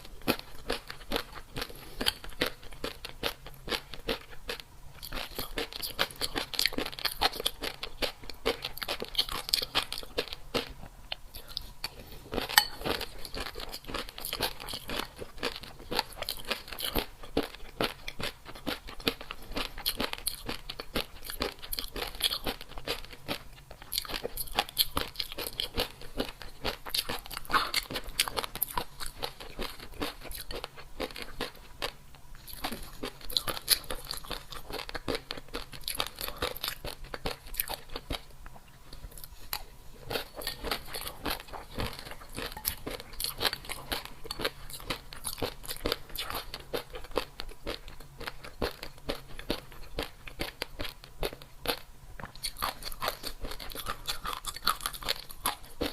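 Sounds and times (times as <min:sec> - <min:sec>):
person chewing crunchy food: 0:00.0 - 0:55.9.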